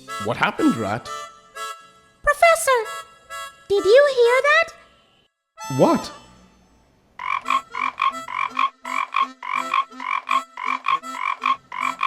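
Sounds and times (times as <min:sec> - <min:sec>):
frogs croaking: 0:07.1 - 0:12.0.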